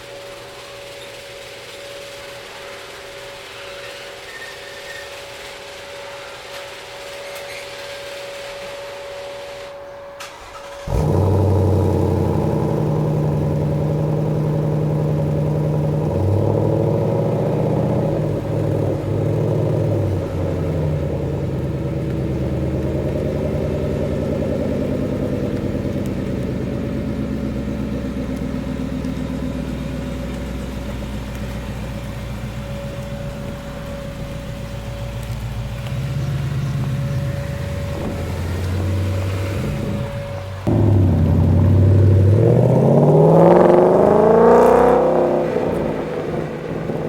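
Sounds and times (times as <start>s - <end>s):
car engine starting and idling: 10.2s - 47.0s.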